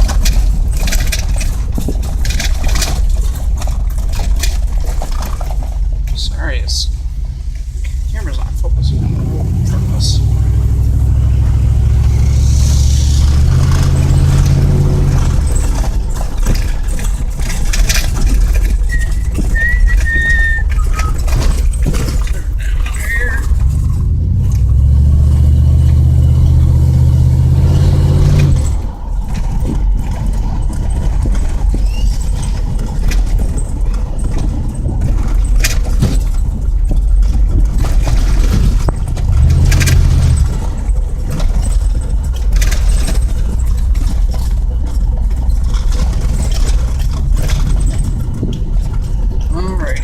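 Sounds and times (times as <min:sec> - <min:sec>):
truck engine revving: 0:00.0 - 0:50.0.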